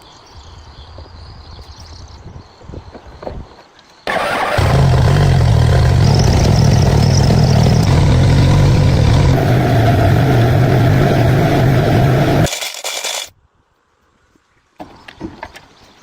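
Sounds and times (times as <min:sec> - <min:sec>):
diesel engine running: 0:04.1 - 0:12.5.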